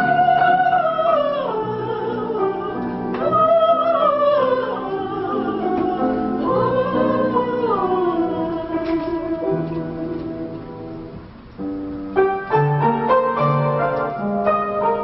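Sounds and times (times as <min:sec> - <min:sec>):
woman singing operatically: 0:00.0 - 0:09.8
instrumental accompaniment: 0:00.0 - 0:15.0.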